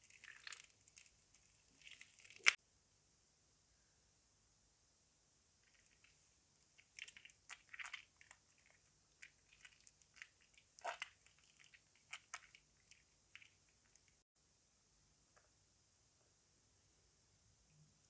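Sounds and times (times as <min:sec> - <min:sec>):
soaked soap crackling and clicking: 0:00.0 - 0:02.6, 0:05.6 - 0:14.2.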